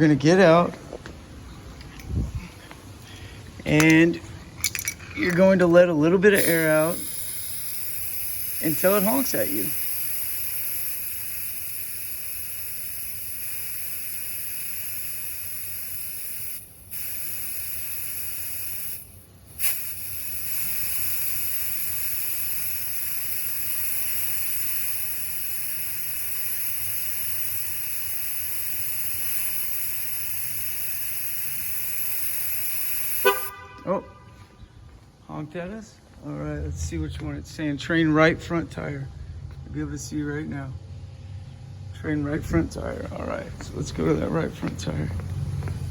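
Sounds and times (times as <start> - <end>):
air hissing out of tire: 6.3 - 33.7.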